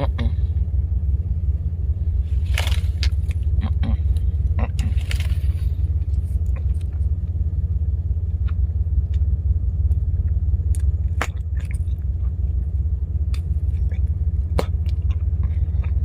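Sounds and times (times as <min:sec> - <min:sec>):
truck engine and road noise: 0:00.0 - 0:16.0.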